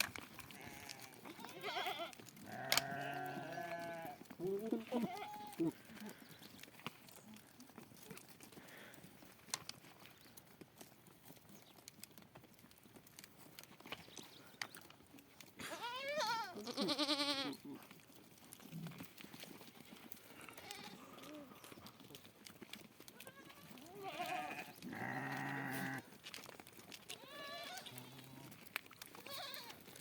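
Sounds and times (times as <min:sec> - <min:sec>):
quavering bleat: 0:00.6 - 0:04.2, 0:15.6 - 0:17.7, 0:20.4 - 0:21.3, 0:23.2 - 0:26.1, 0:27.2 - 0:28.5.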